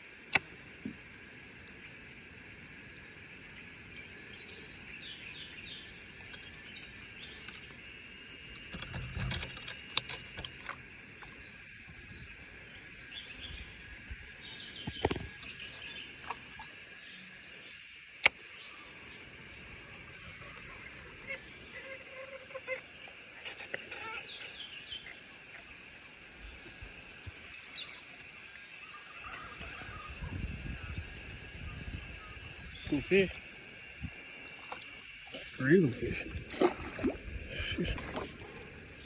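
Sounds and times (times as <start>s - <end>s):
fishing gear clicking and knocking: 6.2s - 7.8s, 8.5s - 12.0s.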